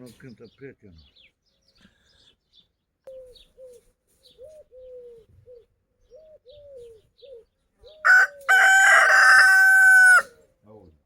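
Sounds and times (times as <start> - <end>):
soft bird calls: 0.0 - 9.0
rooster crowing: 8.0 - 10.4.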